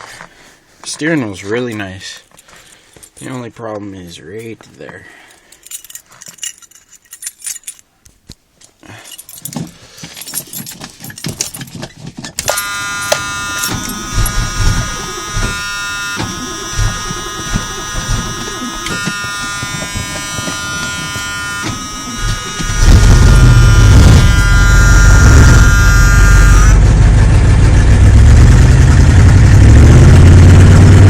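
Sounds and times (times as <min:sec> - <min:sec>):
keys jangling: 0:02.2 - 0:03.4, 0:05.3 - 0:07.9, 0:08.6 - 0:14.4
electric warning buzzer: 0:12.4 - 0:26.9.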